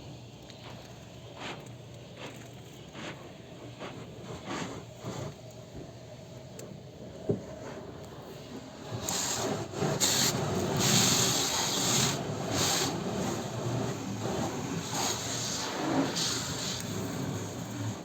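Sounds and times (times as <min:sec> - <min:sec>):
hissing scrubbing of car washing: 0:00.1 - 0:05.5, 0:07.4 - 0:18.0.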